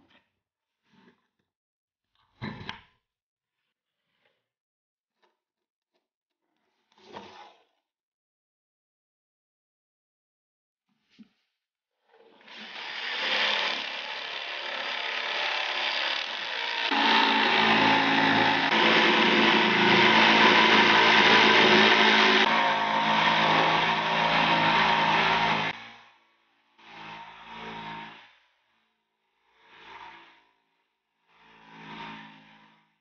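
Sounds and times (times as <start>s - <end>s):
woodworking power tool running: 12.4s - 25.9s.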